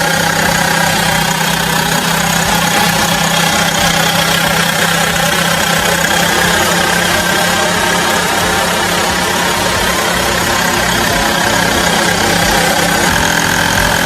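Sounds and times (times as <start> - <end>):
generator engine running: 0.0 - 14.0.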